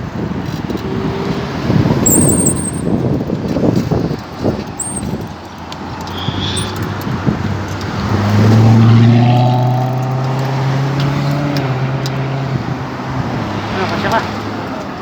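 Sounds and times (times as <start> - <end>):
road traffic rushing: 0.0 - 15.0
vehicle engine passing by: 6.2 - 15.0.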